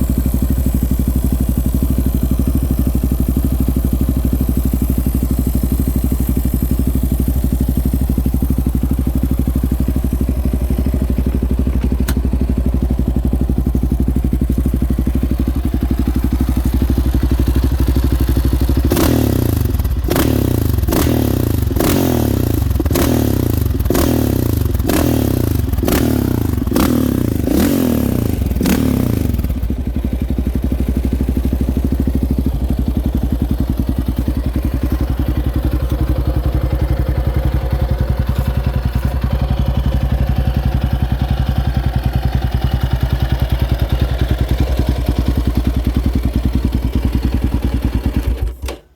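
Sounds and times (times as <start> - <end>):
motorcycle engine idling: 0.0 - 48.9.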